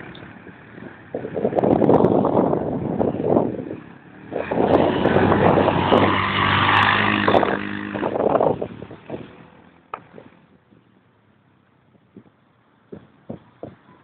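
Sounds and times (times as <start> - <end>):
motorcycle engine running: 0.0 - 10.9.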